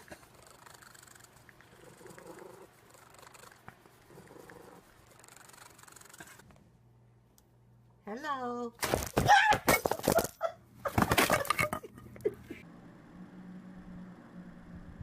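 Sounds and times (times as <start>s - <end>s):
cat purring: 0.0s - 6.4s.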